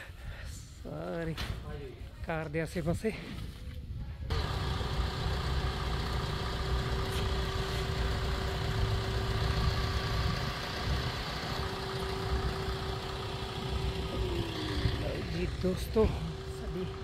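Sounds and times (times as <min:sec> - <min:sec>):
car engine idling: 0:04.3 - 0:17.0.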